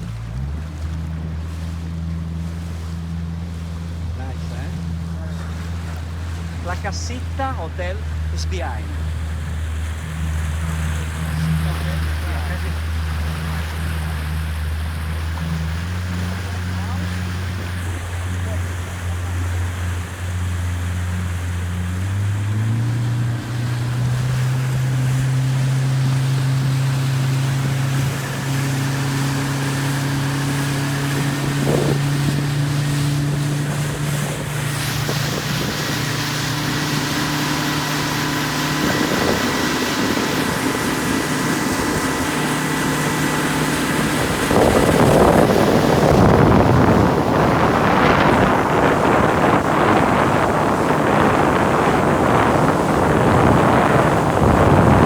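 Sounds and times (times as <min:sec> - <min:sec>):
motorboat engine running: 0:00.0 - 0:55.0
rush of wind and water: 0:00.0 - 0:55.0.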